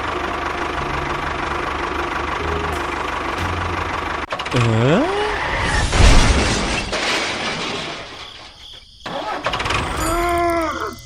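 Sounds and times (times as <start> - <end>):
loud crash: 5.2 - 8.6.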